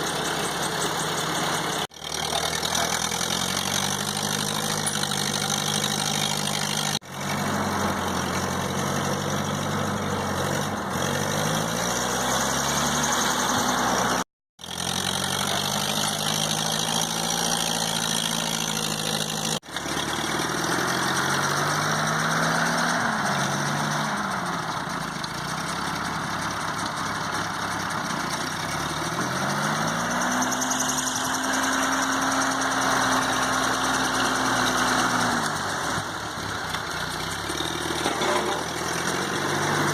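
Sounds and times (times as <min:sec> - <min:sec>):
tractor engine revving: 0:00.0 - 0:39.9.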